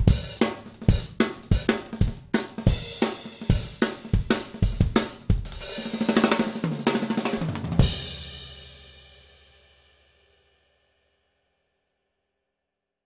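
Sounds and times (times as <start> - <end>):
drum kit groove: 0.0 - 8.9.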